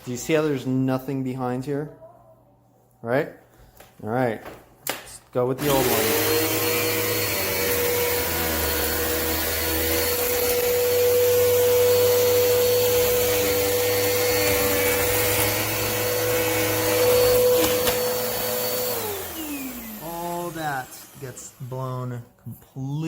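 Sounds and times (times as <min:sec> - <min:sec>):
vacuum cleaner motor whine: 0:05.6 - 0:22.2.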